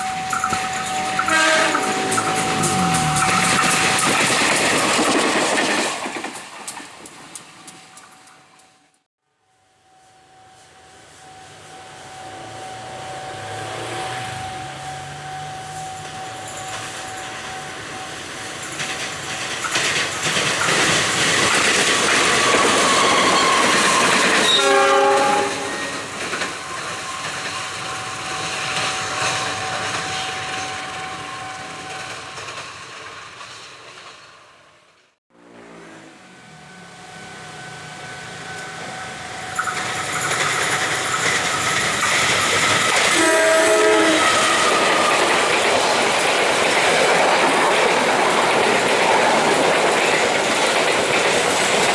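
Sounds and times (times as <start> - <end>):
train horn: 0.0 - 4.2, 22.3 - 26.2, 42.9 - 45.6
train rumbling and clattering: 0.0 - 9.1, 11.6 - 35.1, 36.6 - 51.9.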